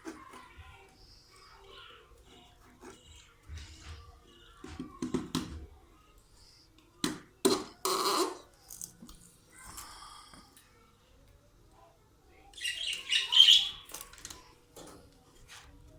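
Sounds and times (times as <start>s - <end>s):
cage birds chirping: 0.2s - 4.8s, 12.3s - 15.1s.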